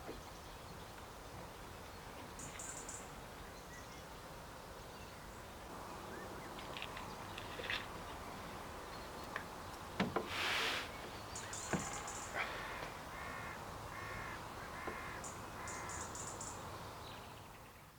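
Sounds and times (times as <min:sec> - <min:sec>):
brief rush of noise: 0:10.3 - 0:10.9
crow cawing: 0:11.8 - 0:16.2.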